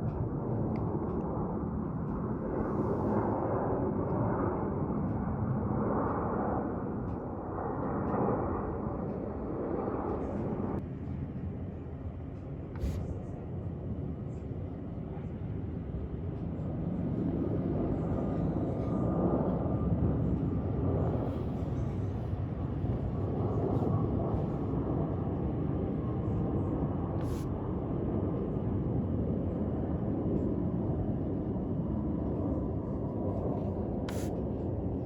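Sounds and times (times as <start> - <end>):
jet engine rushing: 16.9 - 28.7, 29.3 - 35.0.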